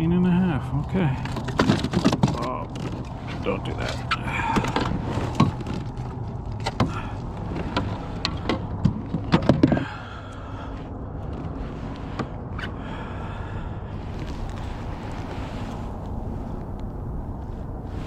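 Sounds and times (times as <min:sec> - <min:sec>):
low background noise: 0:00.0 - 0:18.0
knocks and clicks of gear handled: 0:01.2 - 0:09.9.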